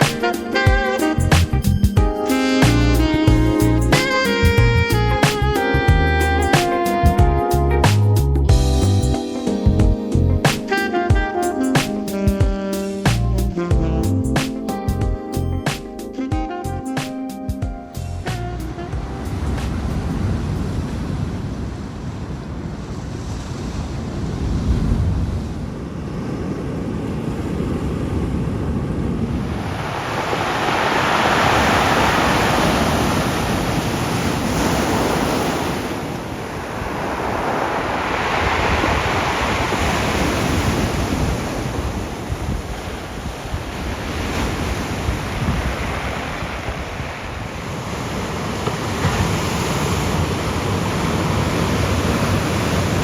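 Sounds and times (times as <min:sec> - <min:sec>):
surf breaking on shore: 0:00.0 - 0:01.2, 0:18.8 - 0:53.0
wind rumble on microphone: 0:18.0 - 0:53.0.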